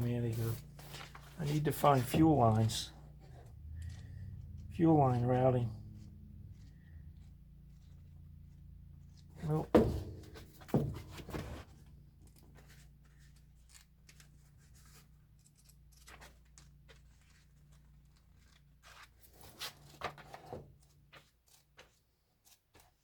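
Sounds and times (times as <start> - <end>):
faint rustles and clicks: 0.0 - 4.8, 5.6 - 23.0
steady low hum: 0.0 - 16.0.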